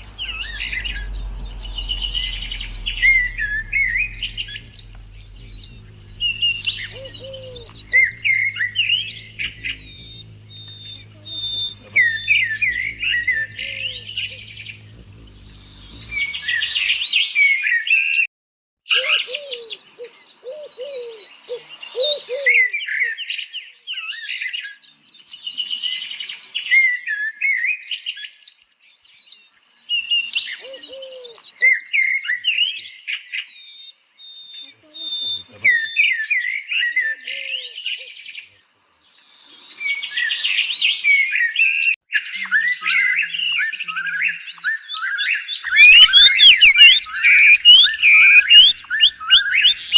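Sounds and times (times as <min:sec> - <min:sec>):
low hum: 0:00.0 - 0:17.1, 0:45.7 - 0:49.9
birds chirping: 0:00.0 - 0:17.2, 0:43.4 - 0:49.9.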